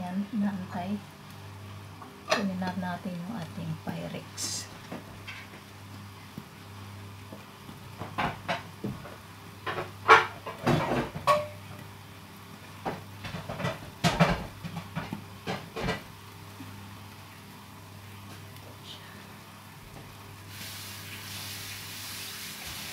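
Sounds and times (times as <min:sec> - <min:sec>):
steady low hum: 0:00.0 - 0:20.5
kitchenware knocking and clattering: 0:09.6 - 0:11.5, 0:13.2 - 0:16.0.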